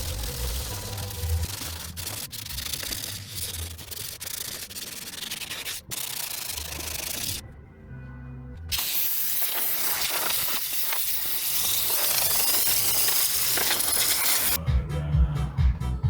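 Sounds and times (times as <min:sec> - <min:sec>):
sanding on sheet metal: 0:00.0 - 0:07.4, 0:08.8 - 0:14.6.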